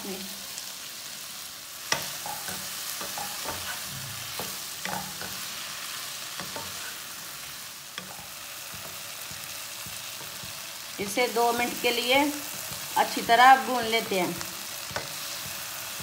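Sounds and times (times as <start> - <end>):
vegetables sizzling in oil: 0.0 - 16.0
wooden spatula scraping a pan: 1.9 - 10.7.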